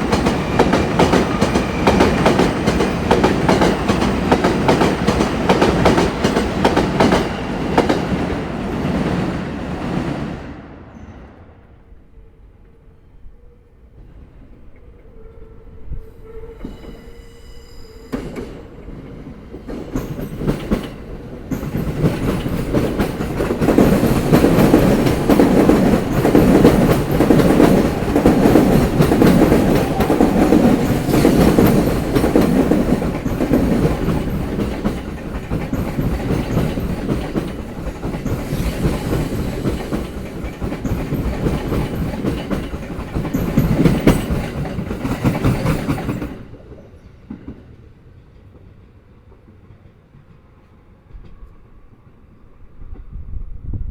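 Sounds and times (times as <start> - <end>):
train wheels clattering over rail joints: 18.3 - 46.5.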